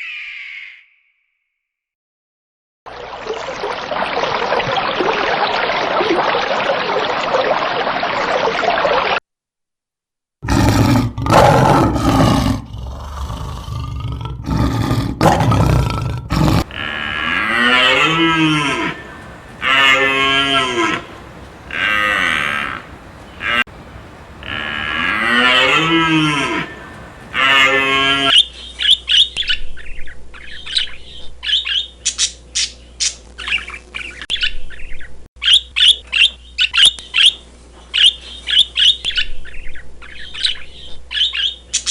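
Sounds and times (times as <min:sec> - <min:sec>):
loud rough animal noise: 0:10.4 - 0:28.3
long pitched animal calls: 0:16.4 - 0:28.3
high bird calls chattering: 0:16.6 - 0:28.3.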